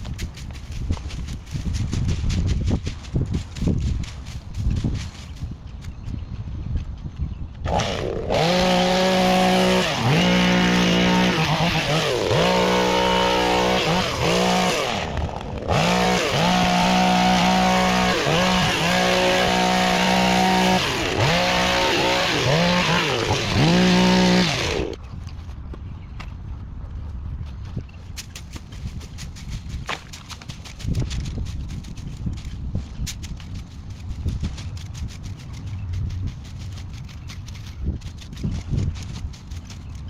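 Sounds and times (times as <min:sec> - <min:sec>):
small two-stroke engine revving: 0:07.6 - 0:25.0.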